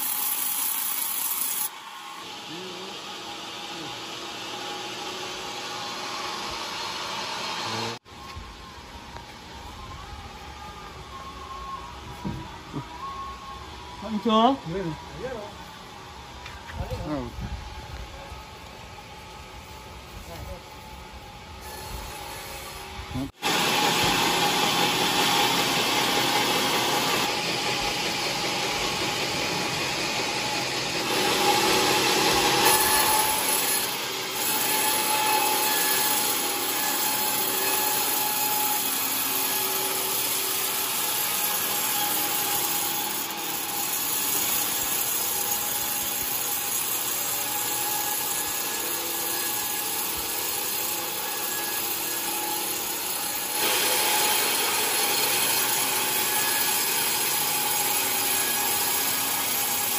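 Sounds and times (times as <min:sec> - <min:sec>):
saw cutting through log: 0:00.0 - 0:08.0, 0:21.6 - 0:59.9.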